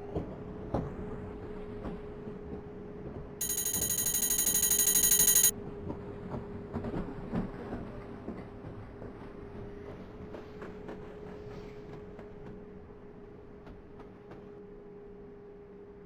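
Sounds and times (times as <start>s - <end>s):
electric bell ringing: 3.4s - 5.5s.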